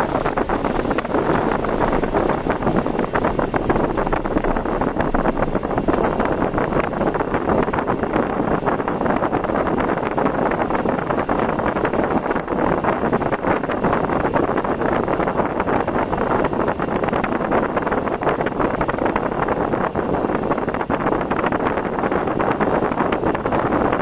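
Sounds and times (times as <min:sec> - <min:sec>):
rain pattering on car: 0:00.0 - 0:08.7
wind and rain rushing: 0:00.0 - 0:24.0.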